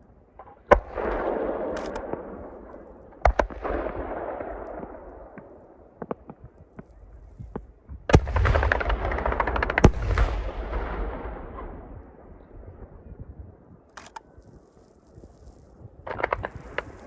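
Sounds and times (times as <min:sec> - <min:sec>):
rapid fireworks crackling: 0:00.6 - 0:11.2, 0:14.1 - 0:17.0
fireworks bangs: 0:16.0 - 0:17.0.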